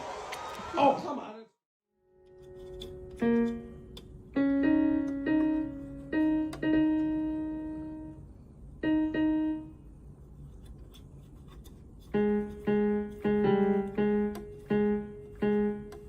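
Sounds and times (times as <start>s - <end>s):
slow piano notes: 2.0s - 10.2s, 12.1s - 16.0s.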